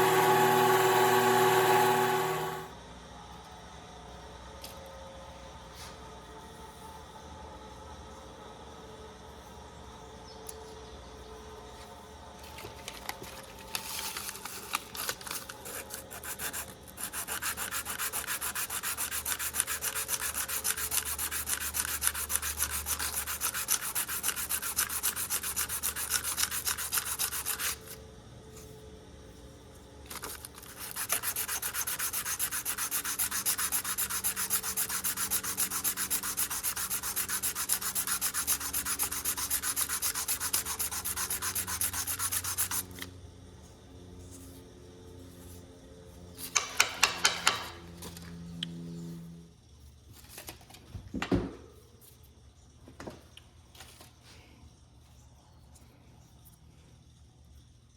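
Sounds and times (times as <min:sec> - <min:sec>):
hand sanding strokes: 0:15.0 - 0:28.0, 0:30.5 - 0:43.0.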